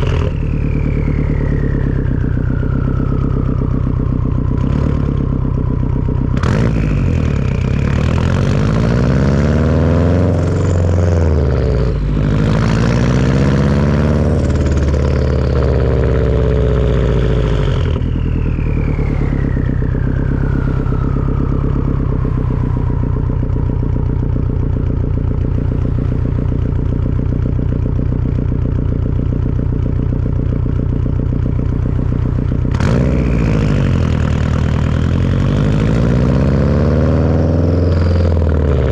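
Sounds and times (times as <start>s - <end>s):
turbo whistle: 0.0s - 26.8s
car engine revving: 0.0s - 38.9s.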